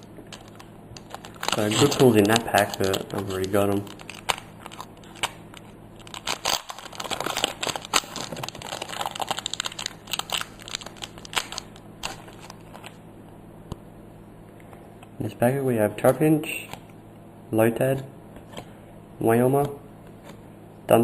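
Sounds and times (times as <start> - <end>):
foil wrapper crinkling and tearing: 0.0 - 13.0.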